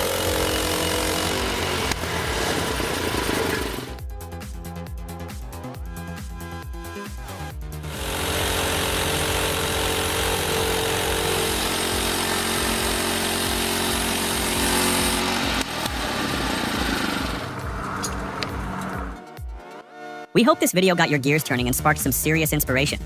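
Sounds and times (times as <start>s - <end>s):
power saw cutting wood: 0.0s - 4.0s, 7.9s - 19.1s
background music with beat: 0.0s - 23.0s.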